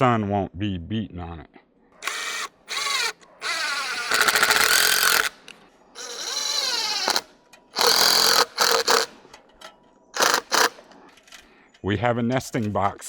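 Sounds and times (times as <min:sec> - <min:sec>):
power driver motor whining: 0:02.0 - 0:05.4, 0:06.0 - 0:09.1.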